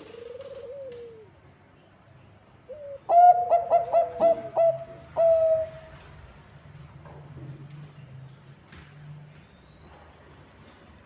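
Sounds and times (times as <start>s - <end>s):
dove cooing: 0.0s - 1.4s, 2.7s - 6.0s.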